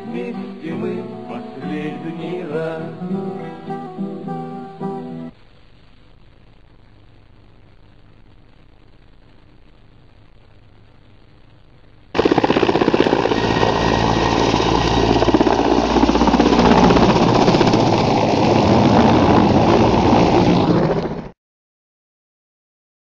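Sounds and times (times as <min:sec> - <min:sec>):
helicopter rotor chopping: 0:12.2 - 0:21.3.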